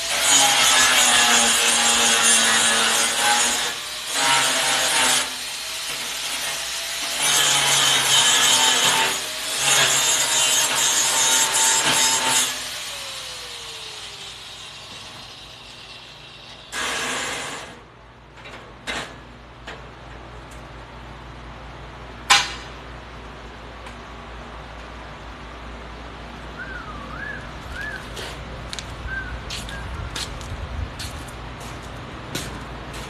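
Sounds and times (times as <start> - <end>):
power tool working metal: 0.0 - 17.8.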